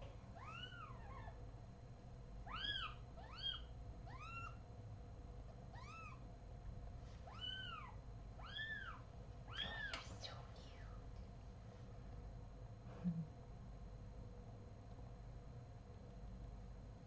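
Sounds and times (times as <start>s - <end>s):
kitten mewing: 2.5s - 4.6s, 5.8s - 6.2s.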